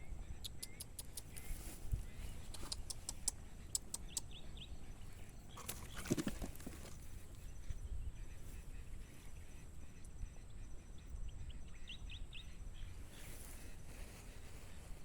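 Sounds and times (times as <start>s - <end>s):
sharp clicks: 0.4s - 1.5s, 2.4s - 4.3s.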